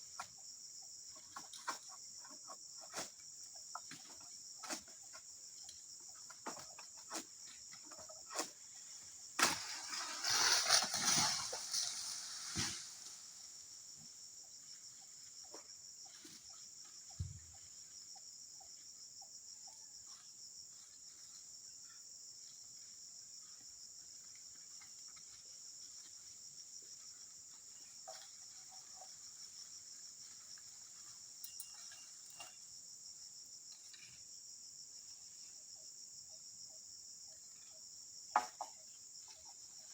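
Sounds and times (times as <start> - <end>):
insects chirring: 0.0 - 39.9
vegetation rustling crash: 9.4 - 13.4.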